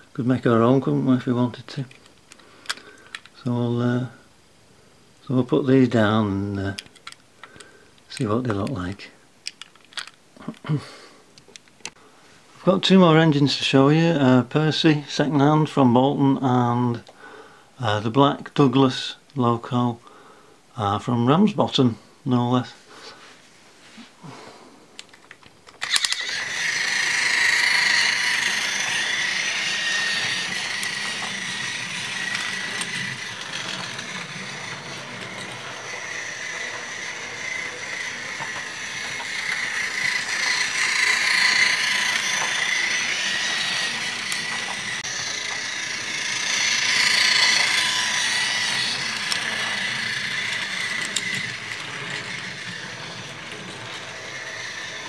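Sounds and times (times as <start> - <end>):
toy train wheels rattling: 6.4 - 10.2, 25.1 - 55.0
toy train motor whine: 25.8 - 55.0.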